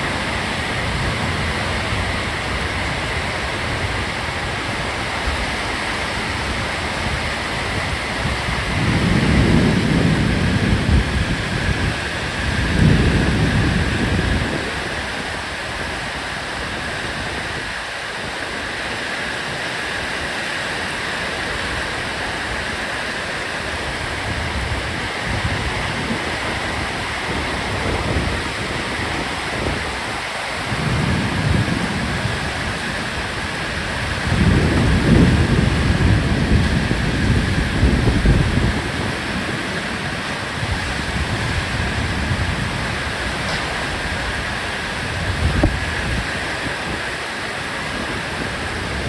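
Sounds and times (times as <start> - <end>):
heavy rain pouring: 0.0 - 49.0
low rumbling: 23.6 - 47.3.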